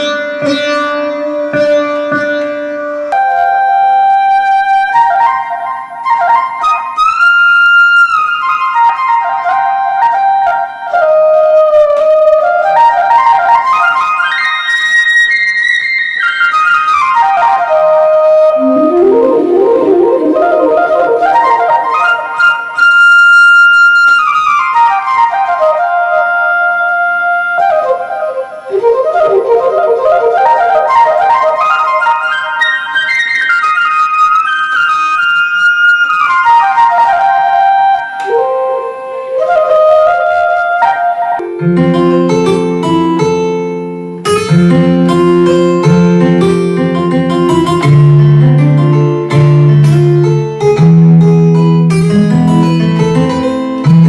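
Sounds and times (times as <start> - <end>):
keyboard flute melody: 0.0 - 54.0.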